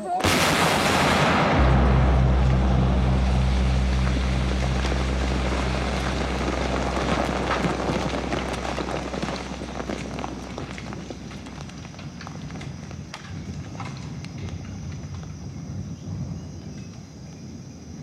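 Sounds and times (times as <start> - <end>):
aircraft drone overhead: 0.2 - 12.2.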